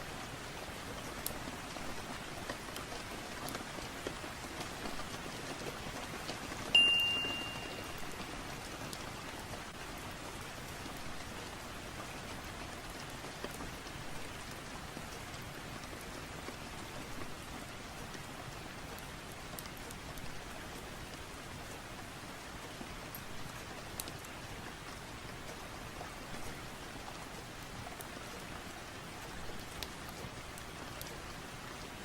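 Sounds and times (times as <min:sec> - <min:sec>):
steady rain falling: 0:00.0 - 0:32.0
ringing chime tone: 0:06.8 - 0:08.0.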